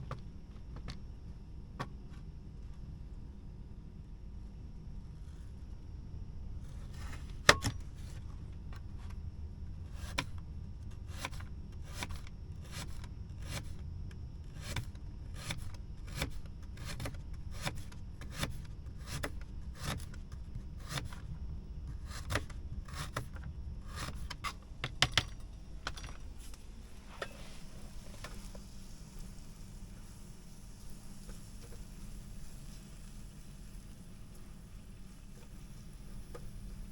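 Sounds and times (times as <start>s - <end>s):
knife cutting food: 14.5s - 20.2s, 20.8s - 21.3s, 21.9s - 25.3s.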